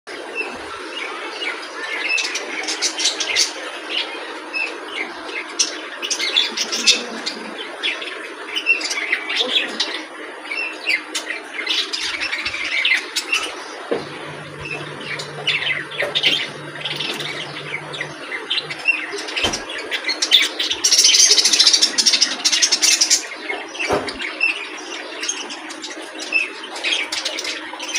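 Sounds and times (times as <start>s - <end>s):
low steady hum: 14.0s - 18.9s.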